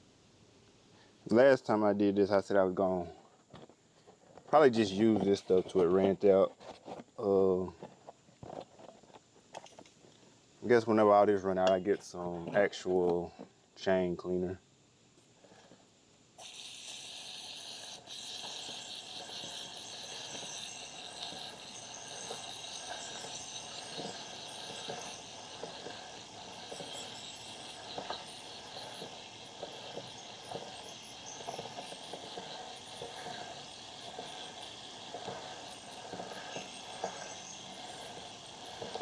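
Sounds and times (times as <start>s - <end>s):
aerosol can spraying hiss: 16.4s - 39.0s.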